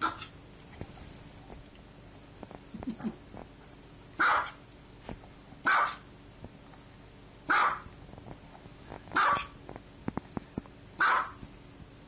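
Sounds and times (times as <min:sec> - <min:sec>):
small dog barking: 0:00.0 - 0:00.3, 0:04.2 - 0:04.6, 0:05.6 - 0:06.1, 0:07.5 - 0:07.9, 0:09.2 - 0:09.6, 0:11.0 - 0:11.4.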